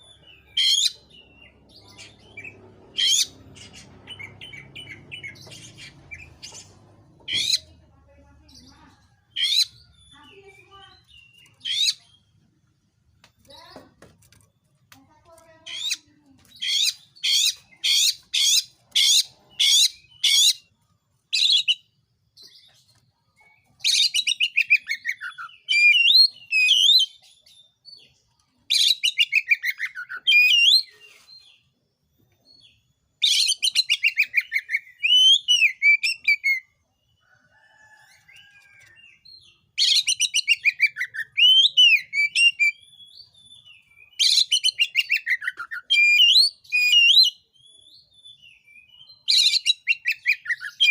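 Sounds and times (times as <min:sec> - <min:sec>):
bird singing loudly: 0:39.8 - 0:43.2, 0:44.0 - 0:47.4.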